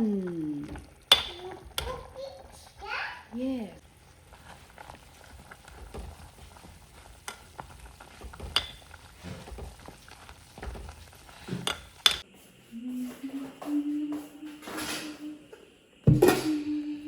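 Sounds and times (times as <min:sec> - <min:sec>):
chicken sizzling in a pan: 0:00.0 - 0:12.4.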